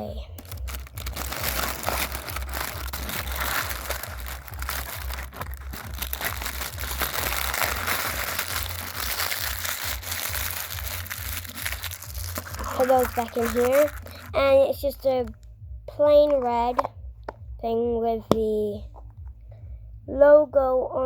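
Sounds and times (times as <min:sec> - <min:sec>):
plastic packaging crinkling: 0:00.3 - 0:14.4.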